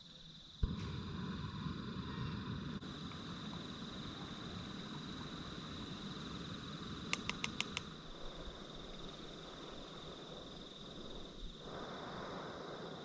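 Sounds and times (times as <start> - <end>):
high-pitched insect trill: 0.0 - 0.7, 1.9 - 13.0
faint hiss: 0.0 - 13.0
cooking gear clicks: 7.1 - 7.9.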